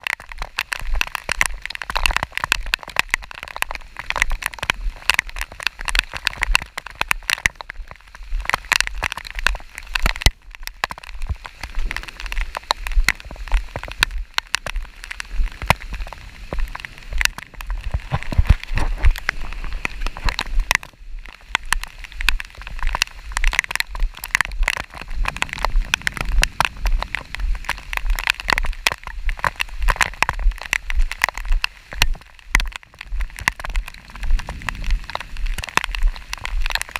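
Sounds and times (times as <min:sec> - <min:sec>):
low rain rumble: 0:00.0 - 0:36.9
raindrops ticking: 0:00.0 - 0:36.9.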